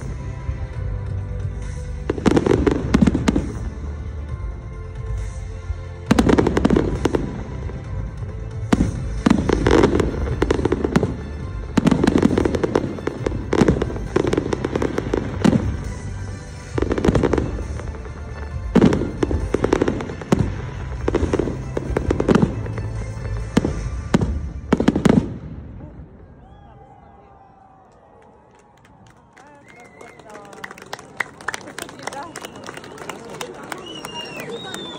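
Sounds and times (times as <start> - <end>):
fireworks bangs and crackling: 0.0 - 26.2, 31.4 - 34.9.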